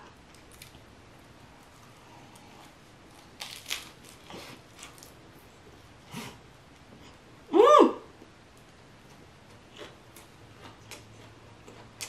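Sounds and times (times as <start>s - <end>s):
crisp crunches: 1.6s - 5.2s
faint chewing: 9.0s - 12.0s.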